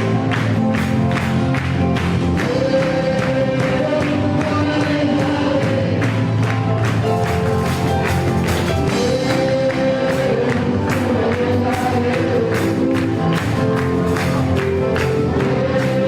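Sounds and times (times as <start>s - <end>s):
gospel band with drums: 0.0s - 16.0s
congregation singing: 2.0s - 6.6s, 7.6s - 16.0s.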